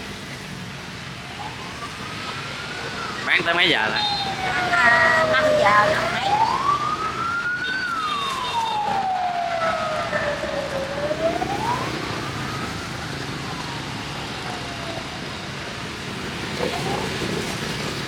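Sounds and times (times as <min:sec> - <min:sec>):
street traffic noise: 0:00.0 - 0:18.0
siren wailing: 0:01.3 - 0:15.7.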